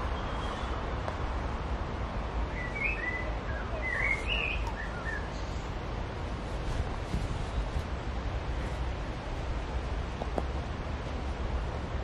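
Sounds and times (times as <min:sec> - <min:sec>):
low outdoor rumble: 0:00.0 - 0:12.0
songbird chirping: 0:02.5 - 0:05.6.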